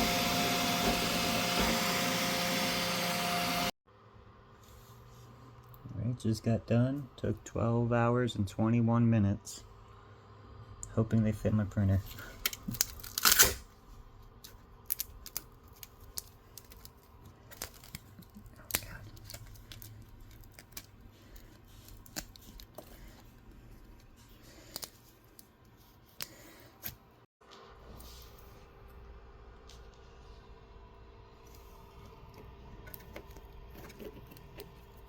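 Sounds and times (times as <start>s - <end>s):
plastic tearing and scraping: 12.6s - 13.6s, 14.9s - 23.3s, 32.9s - 35.0s.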